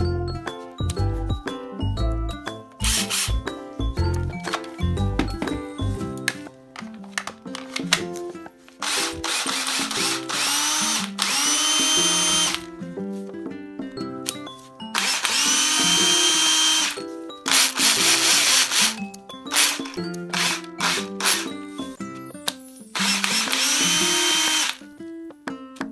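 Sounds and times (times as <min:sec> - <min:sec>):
background music: 0:00.0 - 0:25.9
cordless power tool motor whining: 0:02.8 - 0:03.3, 0:08.8 - 0:12.7, 0:15.0 - 0:21.5, 0:23.0 - 0:24.8.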